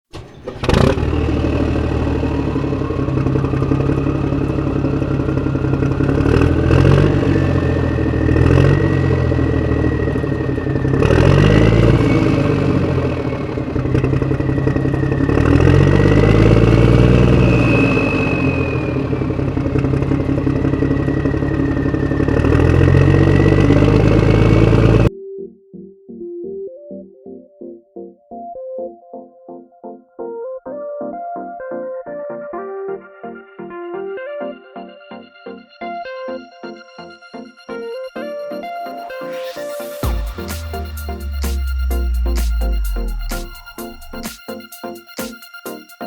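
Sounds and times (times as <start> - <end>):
low engine-like hum: 0.1 - 25.1, 39.4 - 44.3
motor high whine: 0.1 - 25.1, 39.2 - 44.3.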